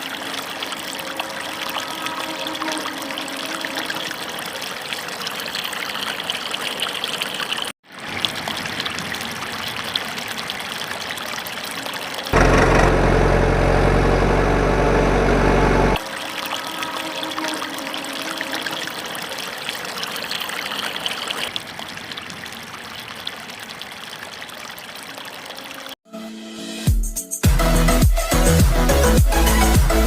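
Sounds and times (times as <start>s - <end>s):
water trickling: 0.0s - 12.4s, 16.0s - 26.0s
low engine-like hum: 12.4s - 16.0s.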